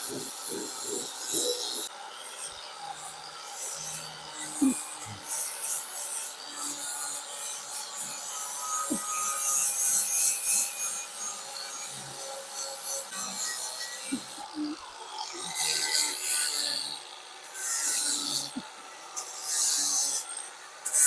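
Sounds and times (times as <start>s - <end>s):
sanding board rasping on body filler: 0.0s - 1.9s.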